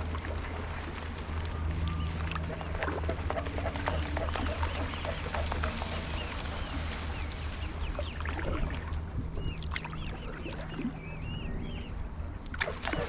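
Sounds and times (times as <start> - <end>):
paddle dipping and dripping: 0.0 - 13.0
steady low rumble: 0.0 - 13.0
bird chirps: 9.4 - 12.5.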